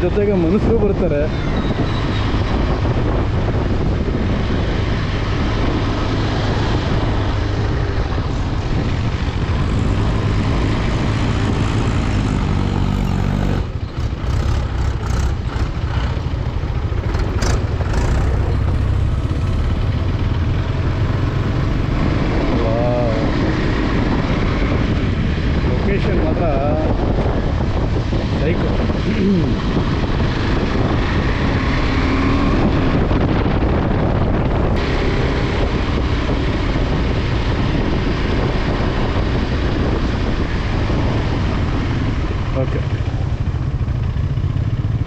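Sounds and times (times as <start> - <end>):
motorcycle engine running: 0.0 - 45.0
wind rushing over microphone: 0.0 - 45.0.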